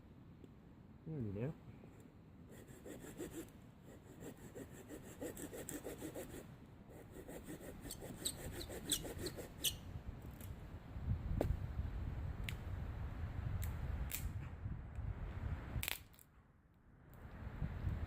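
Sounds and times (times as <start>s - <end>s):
hand saw cutting wood: 2.6s - 9.7s.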